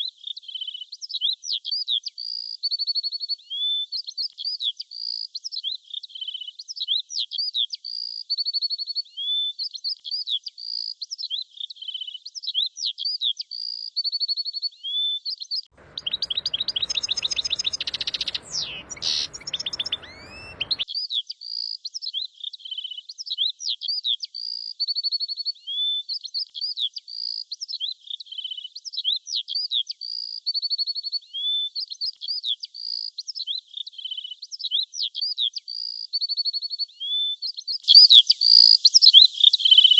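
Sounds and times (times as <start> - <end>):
rushing noise: 15.8 - 20.8
songbirds chirping and trilling: 15.8 - 20.8.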